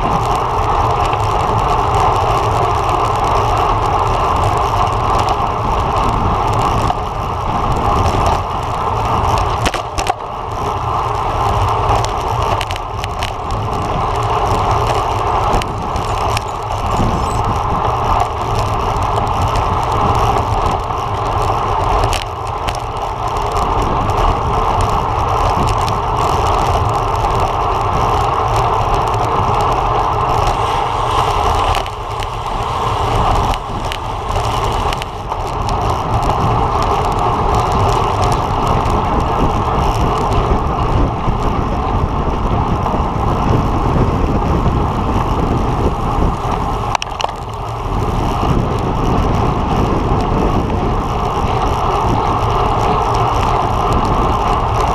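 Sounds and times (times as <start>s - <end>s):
bicycle road noise: 0.0s - 54.9s
wind rushing: 28.6s - 41.2s.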